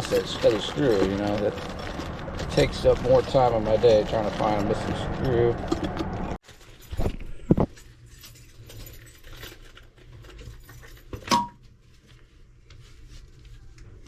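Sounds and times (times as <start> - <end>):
screws clinking and rattling: 6.5 - 11.4.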